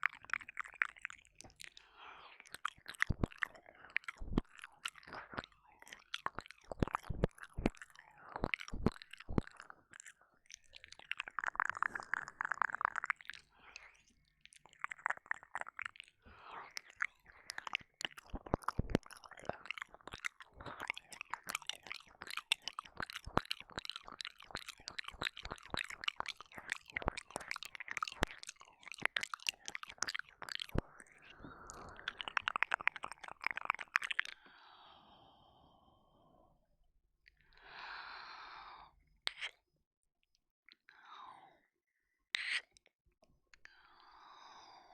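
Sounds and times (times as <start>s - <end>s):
wet mouth sounds: 0.0s - 34.5s, 39.3s - 39.6s.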